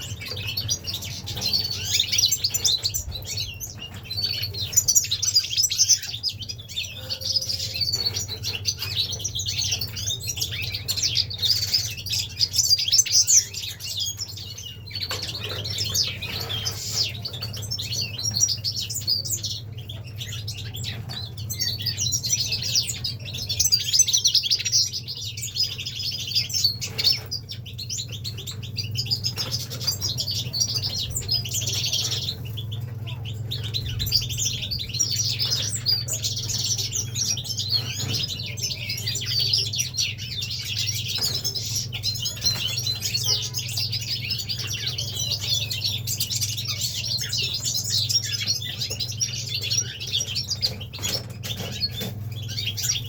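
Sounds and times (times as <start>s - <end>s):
finches chirping and trilling: 0.0s - 53.0s.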